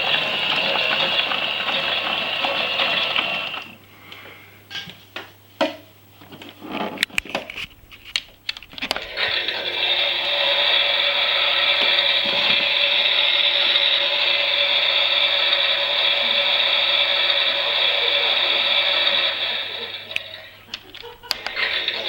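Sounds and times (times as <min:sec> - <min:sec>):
toy washing machine whirring: 0:00.0 - 0:03.8, 0:06.3 - 0:22.0.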